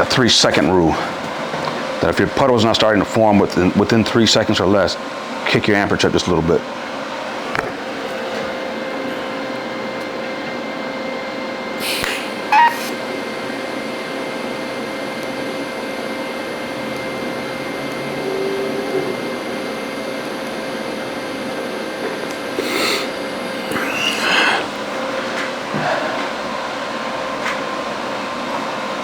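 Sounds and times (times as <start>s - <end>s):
welding arc hissing: 11.8s - 13.0s.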